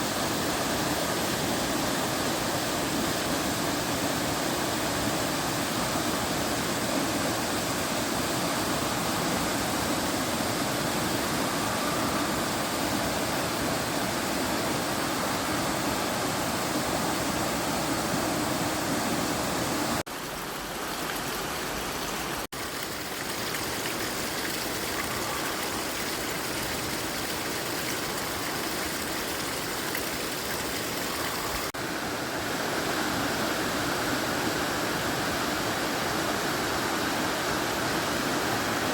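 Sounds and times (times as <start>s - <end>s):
water running over rocks: 0.0s - 31.8s
waterfall rushing: 0.0s - 38.9s.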